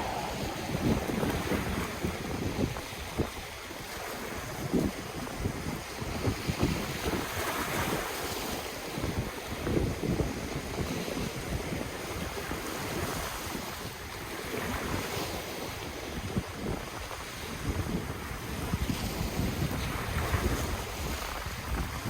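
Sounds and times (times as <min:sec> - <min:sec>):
ocean waves on shore: 0:00.0 - 0:09.9
wind buffeting microphone: 0:00.0 - 0:13.7.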